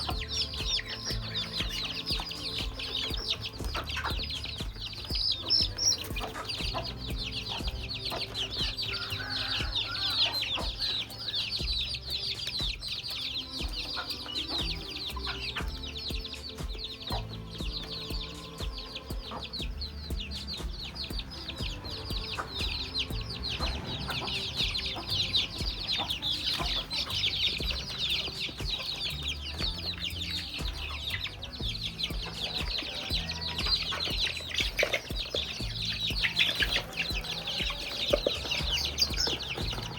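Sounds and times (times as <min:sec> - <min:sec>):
chickens clucking: 0:00.0 - 0:39.9
rapid high-pitched chirping: 0:00.0 - 0:39.9.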